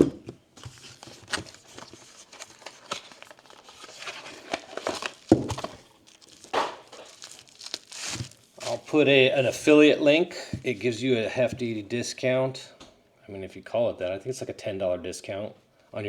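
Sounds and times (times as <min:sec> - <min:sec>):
packaging crinkling and rustling: 0:00.0 - 0:09.8.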